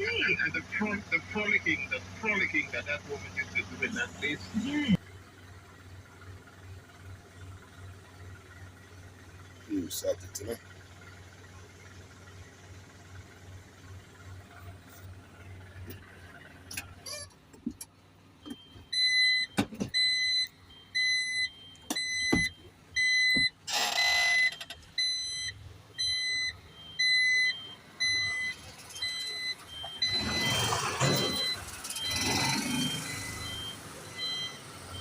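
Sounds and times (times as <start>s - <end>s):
truck reversing alarm beeping: 0.0s - 5.0s, 18.3s - 35.0s
higher beep: 24.4s - 35.0s.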